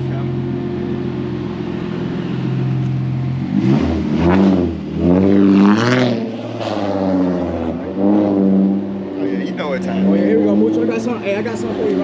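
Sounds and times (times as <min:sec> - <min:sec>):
car engine idling and revving: 0:00.0 - 0:12.0.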